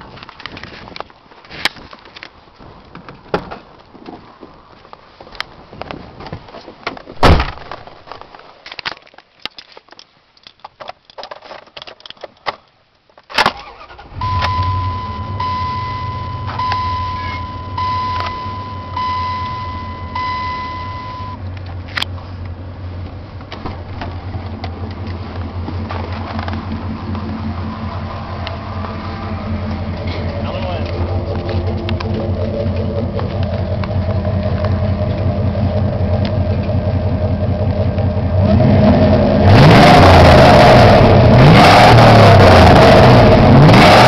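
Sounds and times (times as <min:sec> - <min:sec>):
truck engine starting and idling: 0:13.3 - 0:44.0
warning chime: 0:14.2 - 0:21.4
clicks: 0:16.4 - 0:22.6.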